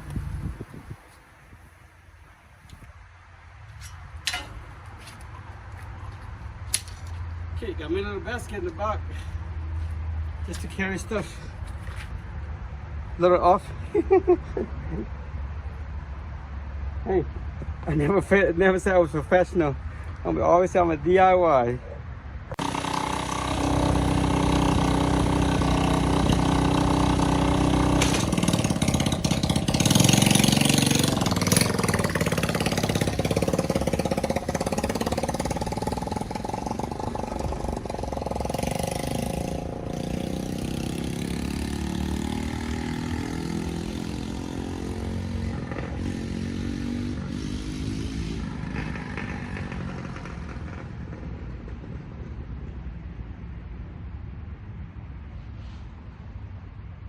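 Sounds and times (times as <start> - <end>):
atv engine revving: 22.6 - 51.4.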